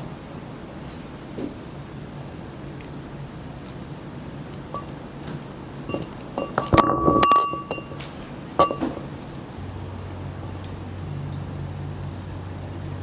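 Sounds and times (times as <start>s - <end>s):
glass clinking: 5.9s - 9.1s.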